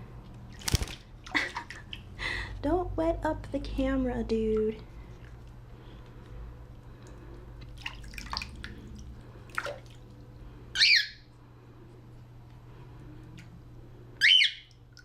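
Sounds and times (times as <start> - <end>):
water splashing: 0.5 - 2.1, 7.6 - 10.2
cockatiel squawking: 10.8 - 11.3, 14.2 - 14.7.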